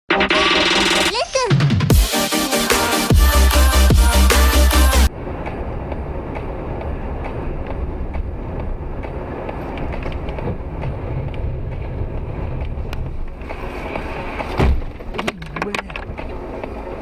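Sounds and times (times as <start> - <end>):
vehicle rumble from inside cabin: 5.0 - 17.0.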